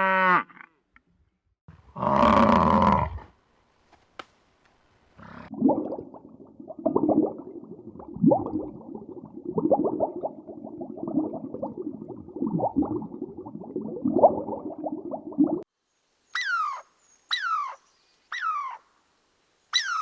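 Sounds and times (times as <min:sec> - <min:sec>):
animals calling: 0:16.4 - 0:18.9, 0:19.7 - 0:20.0.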